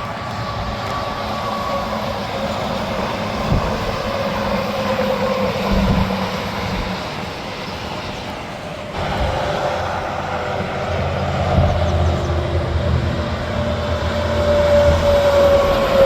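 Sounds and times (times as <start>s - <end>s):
trucks passing at speed: 0.0s - 16.0s
tyre and engine noise rushing: 0.0s - 16.0s.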